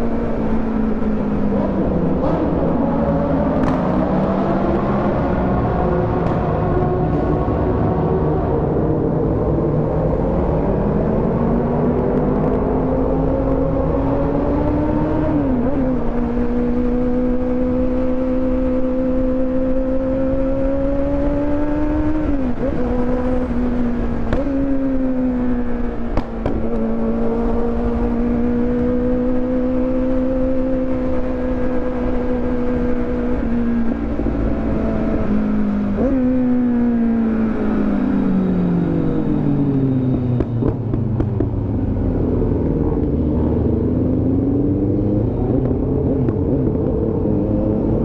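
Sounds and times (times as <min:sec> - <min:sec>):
motorcycle engine running hard: 0:13.1 - 0:48.0.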